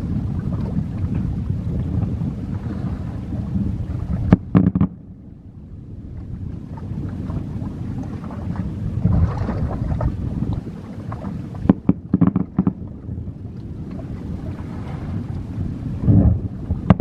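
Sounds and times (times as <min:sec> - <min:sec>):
fireworks booming: 0:04.2 - 0:05.0, 0:11.7 - 0:12.8.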